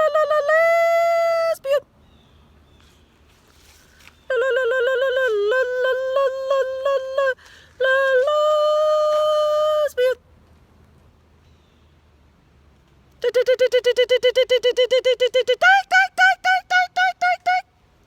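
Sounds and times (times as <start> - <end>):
woman giving mock animal call: 13.2 - 17.7.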